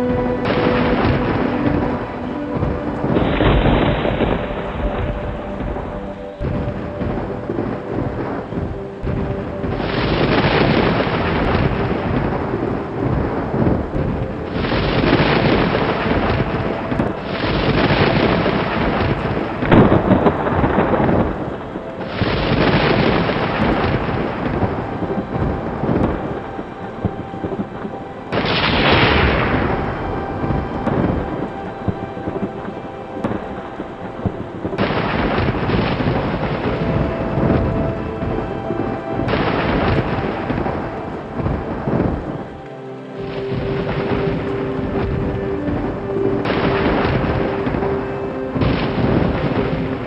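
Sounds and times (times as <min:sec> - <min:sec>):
steady rain: 0:00.6 - 0:49.9
thunder rumbling: 0:18.6 - 0:25.0.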